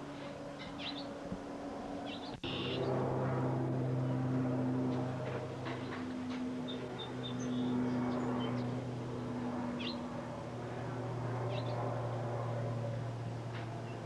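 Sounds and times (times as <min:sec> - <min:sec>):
steady low hum: 0:00.0 - 0:14.0
bird chirping: 0:00.6 - 0:01.1, 0:02.0 - 0:02.9, 0:06.6 - 0:08.7.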